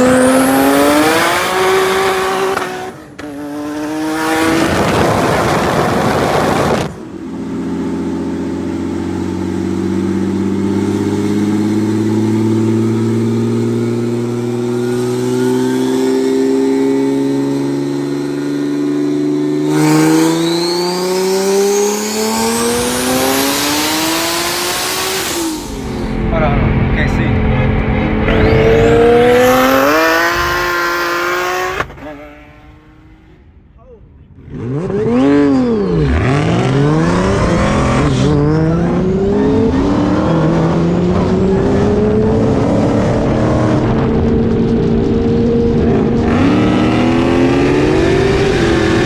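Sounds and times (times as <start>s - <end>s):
car engine at full throttle: 0.0s - 49.0s.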